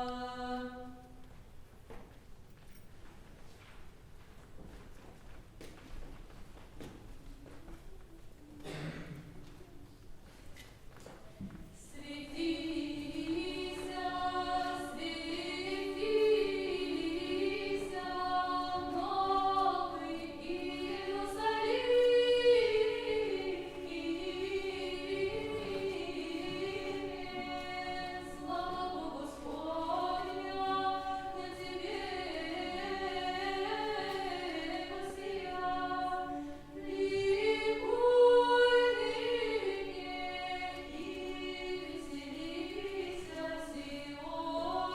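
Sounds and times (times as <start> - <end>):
choir singing chant: 0.0 - 1.2, 11.8 - 44.9.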